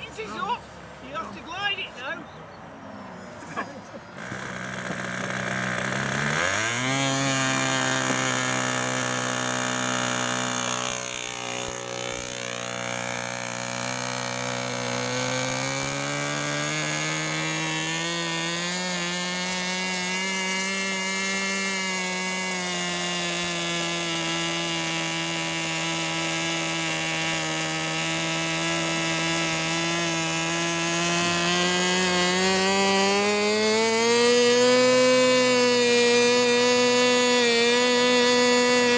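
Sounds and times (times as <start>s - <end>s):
model aircraft engine whining: 4.2s - 6.6s.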